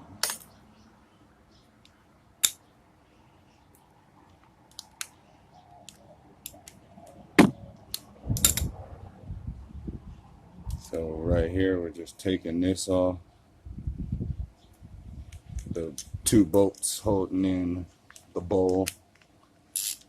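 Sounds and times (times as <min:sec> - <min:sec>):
sharp knocks: 0:07.4 - 0:07.6.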